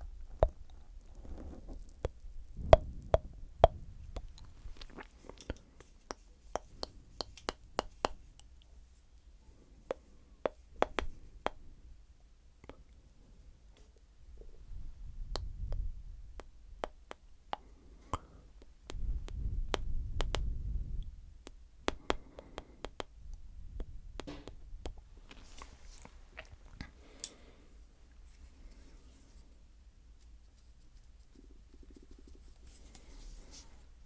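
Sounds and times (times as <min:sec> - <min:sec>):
low microphone contact rumble: 0:01.3 - 0:05.0
wet mouth clicks and smacks: 0:01.9 - 0:08.7, 0:15.2 - 0:27.4.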